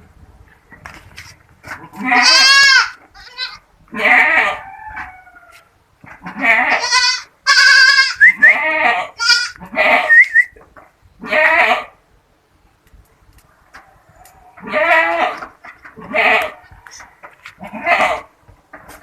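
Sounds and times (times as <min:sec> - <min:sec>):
goats bleating: 0:01.8 - 0:05.1, 0:06.2 - 0:10.2, 0:11.2 - 0:11.9, 0:14.6 - 0:17.0, 0:17.6 - 0:18.3.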